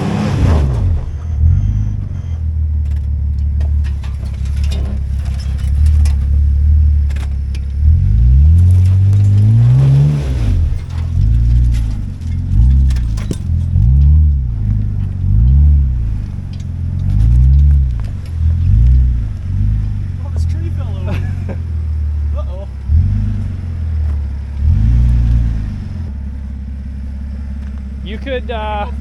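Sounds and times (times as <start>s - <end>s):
truck engine revving: 0.0s - 29.0s
light clicks and rattles: 2.8s - 7.8s.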